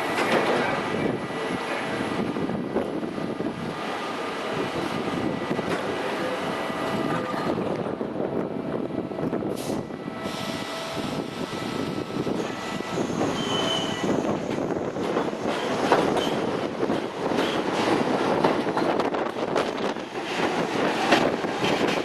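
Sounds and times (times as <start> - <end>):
subway train rumble: 0.0 - 22.0
wheel squeal: 12.9 - 14.4.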